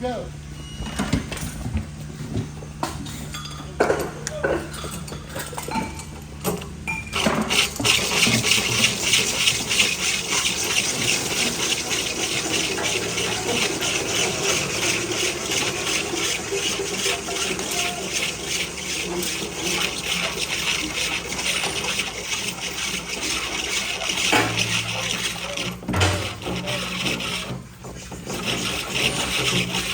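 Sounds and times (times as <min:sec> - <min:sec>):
drill cutting with hole saw: 0:07.2 - 0:27.6, 0:28.3 - 0:29.9.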